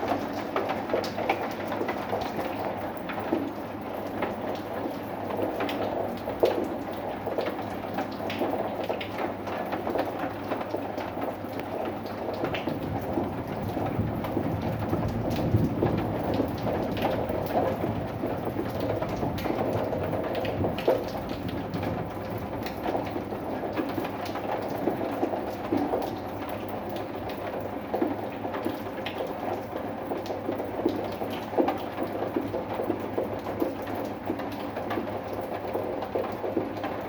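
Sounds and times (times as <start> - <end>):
rain falling: 0.0 - 37.0
low rumble of thunder: 12.5 - 24.0.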